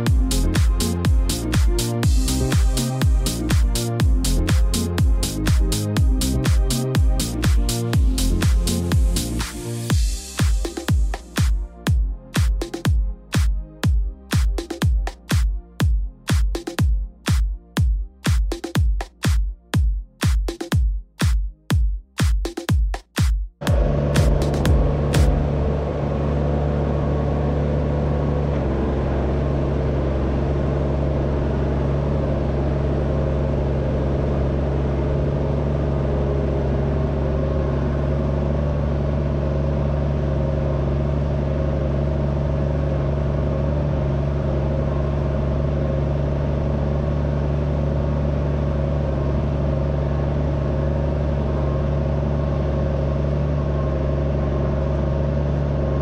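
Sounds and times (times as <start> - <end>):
tractor engine running: 0.0 - 11.5, 23.6 - 56.0.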